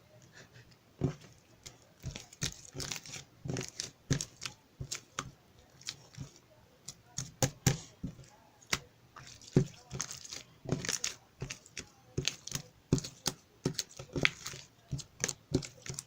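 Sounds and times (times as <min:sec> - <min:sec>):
material crinkling and tearing: 0:02.0 - 0:06.2.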